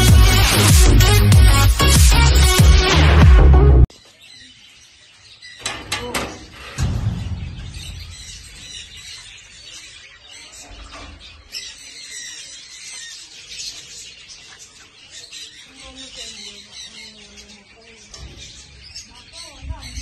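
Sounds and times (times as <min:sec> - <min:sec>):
birds chirping and twittering: 0:03.9 - 0:20.0
sharp knocks: 0:05.6 - 0:09.4
low rumble: 0:06.4 - 0:09.3.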